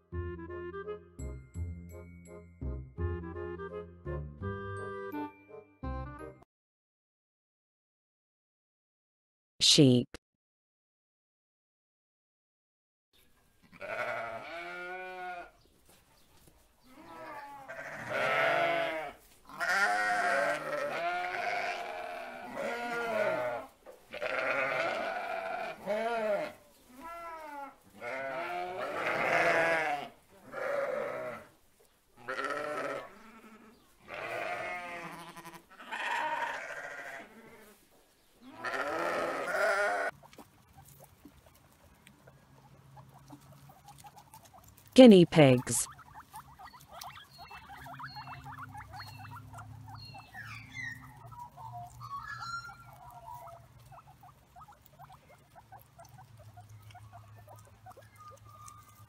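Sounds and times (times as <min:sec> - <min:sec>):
sheep bleating: 0:13.6 - 0:15.6, 0:16.9 - 0:31.5, 0:32.2 - 0:37.8, 0:38.4 - 0:40.1.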